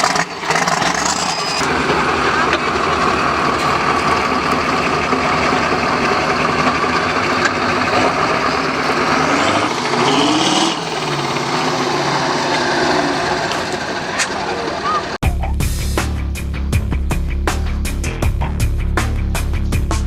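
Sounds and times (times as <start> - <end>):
diesel truck engine revving: 0.0 - 15.2.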